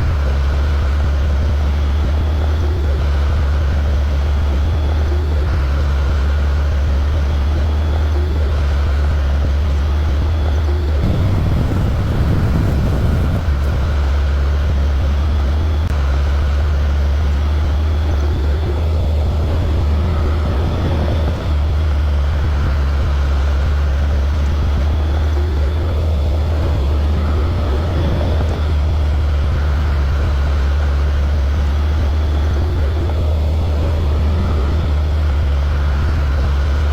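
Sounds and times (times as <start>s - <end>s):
excavator engine running: 0.0s - 36.9s.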